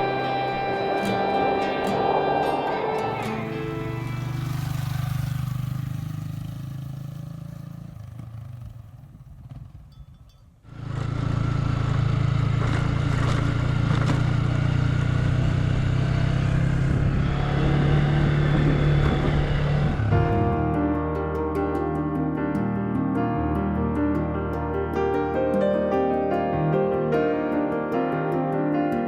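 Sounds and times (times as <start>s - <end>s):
music: 0.0s - 5.2s, 20.0s - 29.0s
motorcycle engine running: 0.0s - 20.7s.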